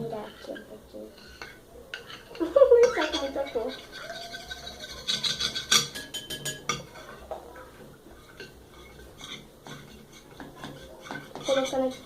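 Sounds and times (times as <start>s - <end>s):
spoon scraping a bowl: 0.1s - 12.0s.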